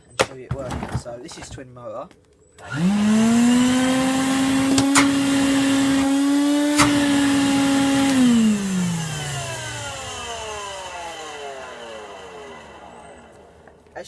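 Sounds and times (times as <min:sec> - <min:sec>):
wet vacuum motor whining: 0:02.6 - 0:14.0
sharp clicks: 0:04.7 - 0:05.4, 0:06.7 - 0:07.2.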